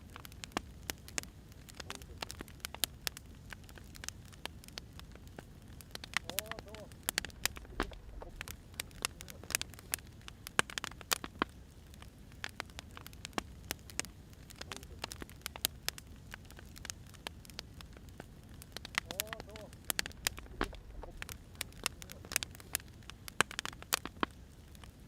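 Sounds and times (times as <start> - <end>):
firewood crackling and popping: 0.0 - 25.0
low steady rumble: 5.0 - 10.6, 14.9 - 23.5.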